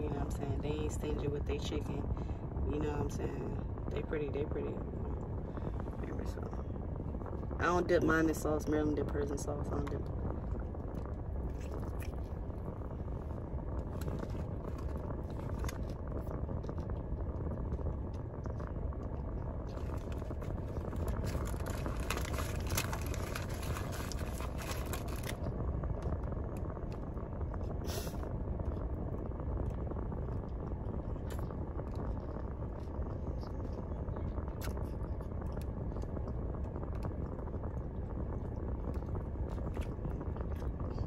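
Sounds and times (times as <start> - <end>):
short crackle: 9.0 - 41.0
chewing a taco: 10.3 - 28.9, 29.6 - 41.0.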